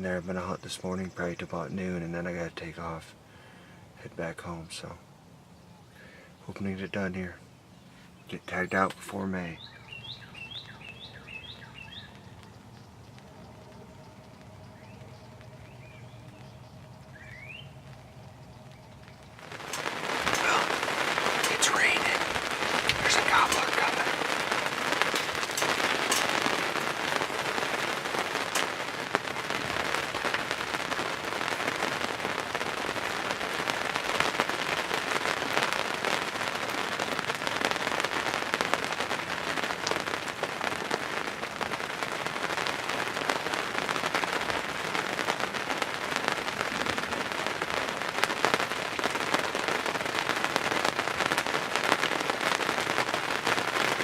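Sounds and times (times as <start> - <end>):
rain ticking on fabric: 0.0 - 54.0.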